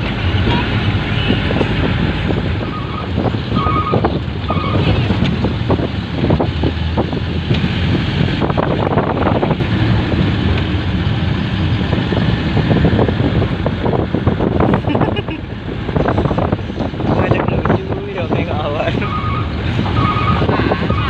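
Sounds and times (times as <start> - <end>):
vehicle road and engine noise: 0.0 - 21.0
wind buffeting microphone: 0.0 - 21.0.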